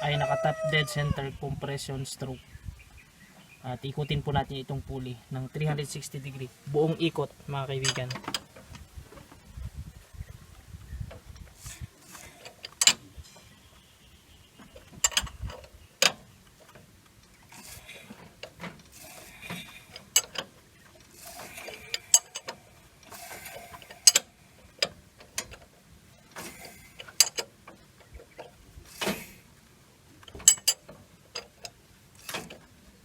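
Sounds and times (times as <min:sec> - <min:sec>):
mechanical rattling: 0:06.9 - 0:13.9, 0:14.6 - 0:33.0
metallic clicks and clanks: 0:07.6 - 0:09.4, 0:11.1 - 0:13.9, 0:14.6 - 0:33.0.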